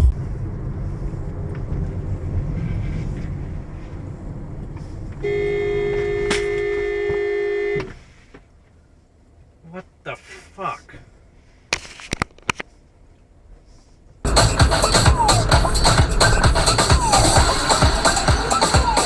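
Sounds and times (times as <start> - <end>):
vehicle rumble: 0.0 - 19.0
car horn honking: 5.2 - 8.0.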